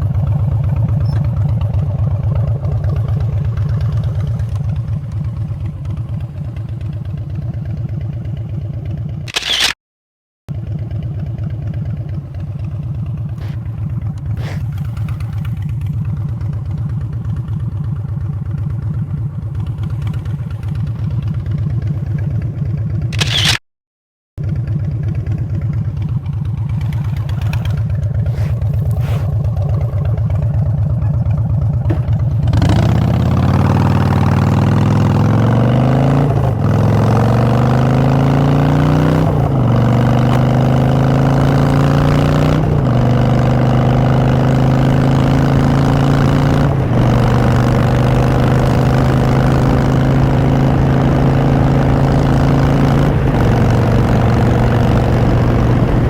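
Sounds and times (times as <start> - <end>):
motorcycle engine idling and accelerating: 0.0 - 9.6, 10.5 - 23.6, 24.4 - 56.0.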